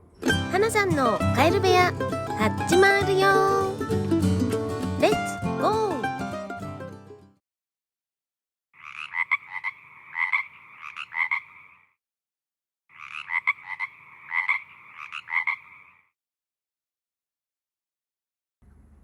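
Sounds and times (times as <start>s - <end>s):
frog croaking: 8.8s - 12.0s, 12.9s - 16.1s.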